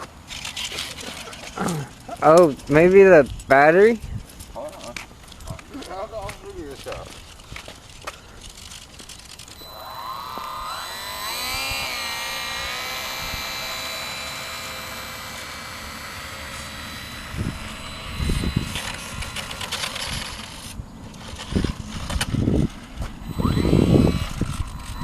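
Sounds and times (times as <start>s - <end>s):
model airplane motor whine: 8.5s - 25.0s.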